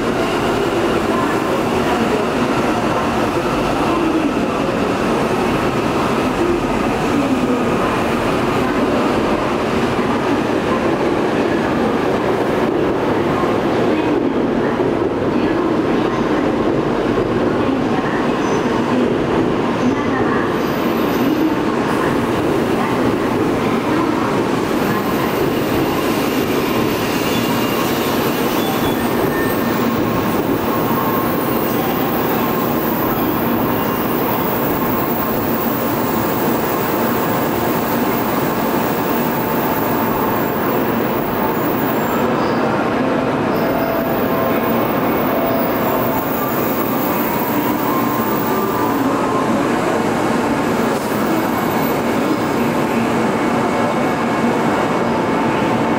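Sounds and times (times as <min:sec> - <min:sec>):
faint high tones: 0:43.5 - 0:49.5.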